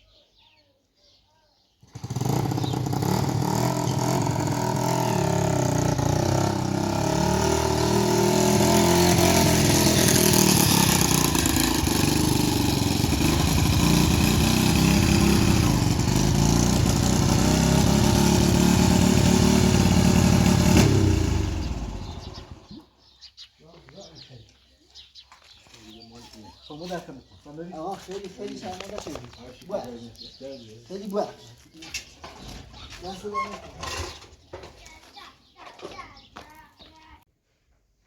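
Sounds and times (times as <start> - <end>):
motorcycle engine running: 1.8 - 22.8.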